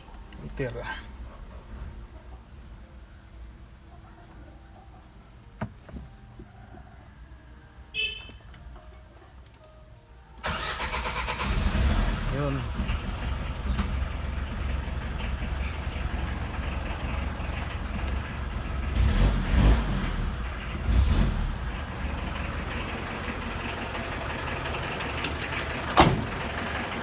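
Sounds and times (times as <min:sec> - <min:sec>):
diesel engine idling: 0:10.4 - 0:27.0.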